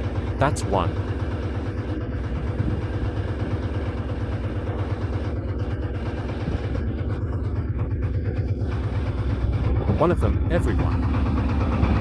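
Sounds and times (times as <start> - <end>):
engine hum: 0.0 - 12.0
engine idling: 0.0 - 12.0.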